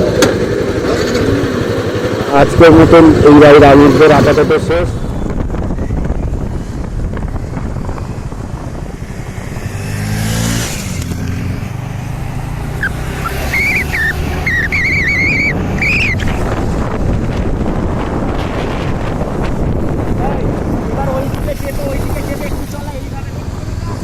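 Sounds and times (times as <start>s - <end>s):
road traffic noise: 0.0s - 24.0s
wind rumble on microphone: 2.4s - 24.0s
vehicle engine passing: 6.5s - 24.0s
warbling high-pitched tone: 12.8s - 16.3s.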